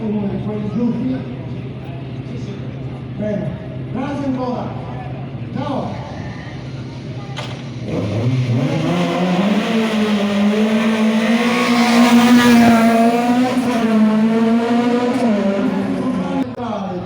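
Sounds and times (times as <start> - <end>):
car engine revving: 7.7 - 16.6.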